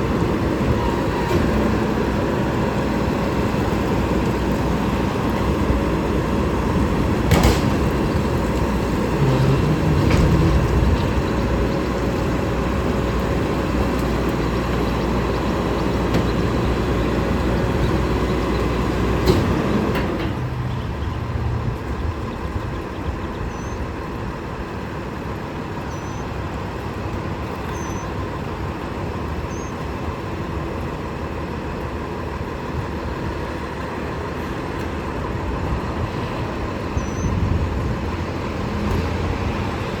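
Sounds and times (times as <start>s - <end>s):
garbage truck engine running: 0.0s - 40.0s.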